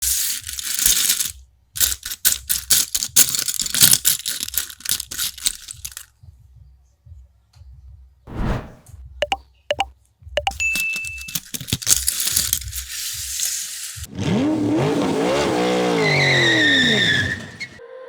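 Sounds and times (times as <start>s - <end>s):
plastic bricks rattling and clicking: 0.0s - 6.0s, 10.4s - 14.0s.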